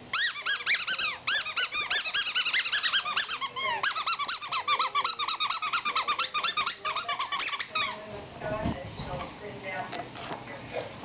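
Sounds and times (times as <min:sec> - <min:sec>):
squeaky toy squeaking: 0:00.0 - 0:08.0.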